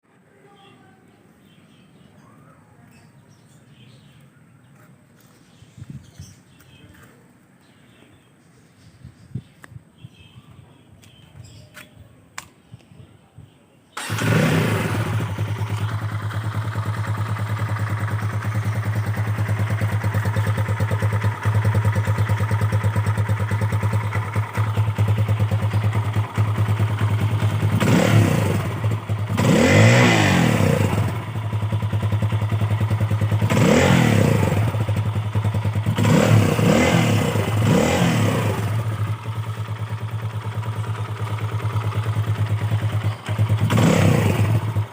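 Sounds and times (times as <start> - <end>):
motorcycle engine idling and revving: 14.0 - 44.9.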